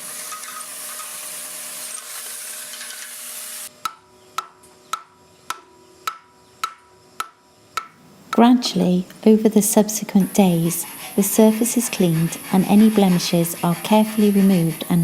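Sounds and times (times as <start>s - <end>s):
power tool hissing: 0.0s - 3.7s, 10.1s - 15.0s
hammer striking metal: 3.8s - 8.5s.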